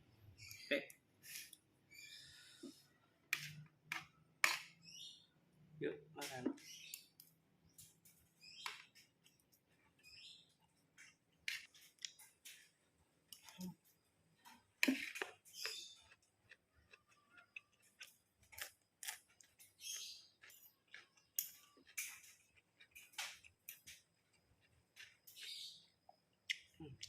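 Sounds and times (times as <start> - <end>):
person chewing wetly: 14.9 - 25.5.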